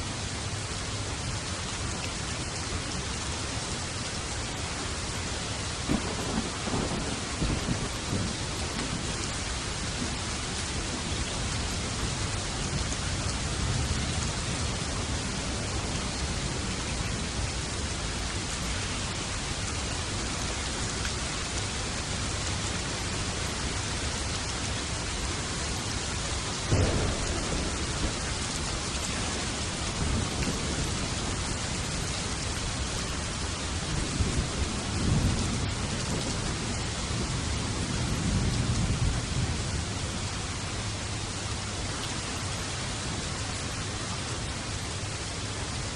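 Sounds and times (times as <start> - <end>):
steady rain: 0.0 - 45.9
thunder clap and rumbles: 5.8 - 17.9, 26.7 - 32.8, 33.4 - 39.8.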